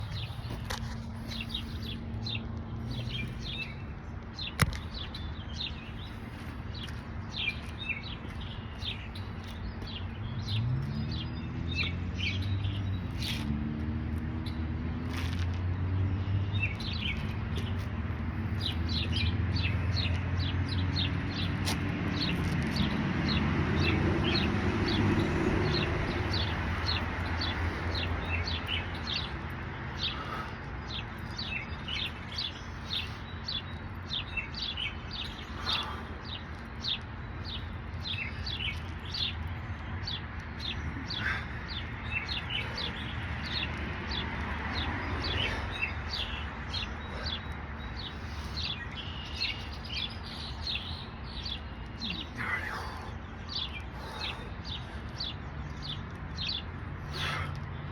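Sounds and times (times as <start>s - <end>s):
bird chirping: 22.2s - 57.9s.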